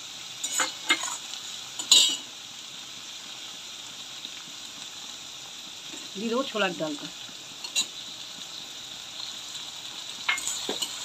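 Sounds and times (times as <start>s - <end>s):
shrimp sizzling in hot oil: 0.0s - 11.0s
spatula knocking and scraping pan: 10.3s - 11.0s.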